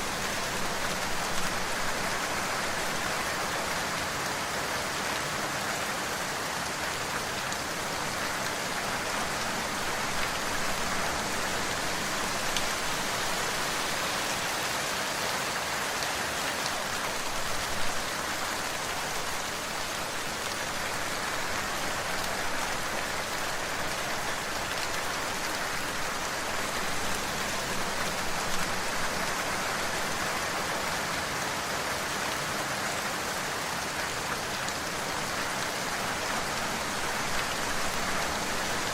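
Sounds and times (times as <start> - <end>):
rain patter: 0.0 - 38.9.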